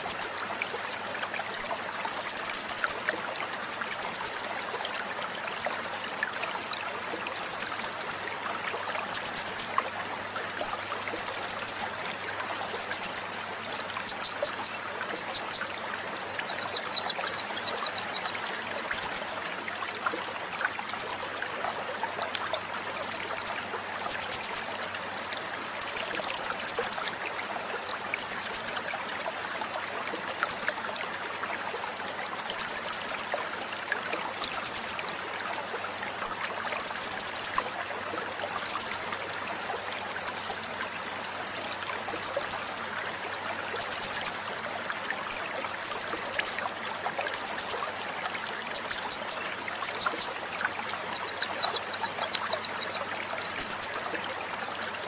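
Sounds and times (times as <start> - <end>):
faint steady hiss: 0.0 - 55.0
bird chirring: 14.0 - 19.4, 48.7 - 54.0
small bird high pulsed trills: 14.1 - 19.3, 48.7 - 54.0.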